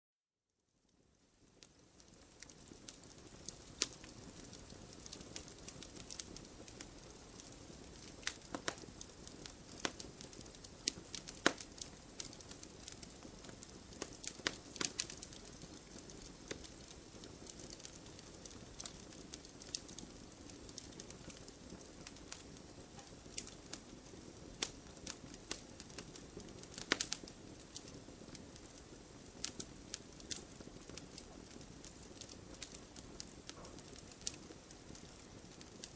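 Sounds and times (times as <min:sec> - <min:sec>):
bonfire crackling and popping: 0:00.9 - 0:35.9.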